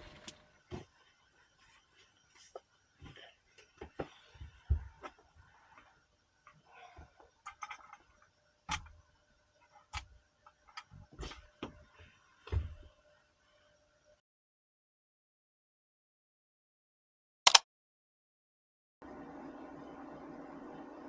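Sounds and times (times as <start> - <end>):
objects being handled clicking: 0.0 - 0.4.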